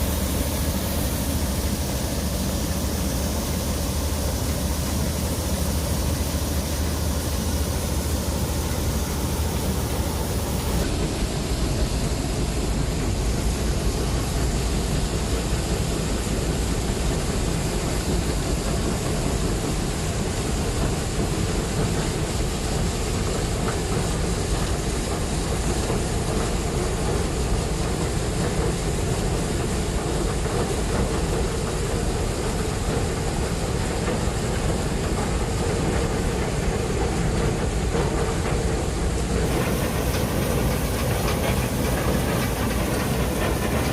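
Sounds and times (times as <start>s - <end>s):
combine harvester running: 0.0s - 17.5s, 29.3s - 43.9s.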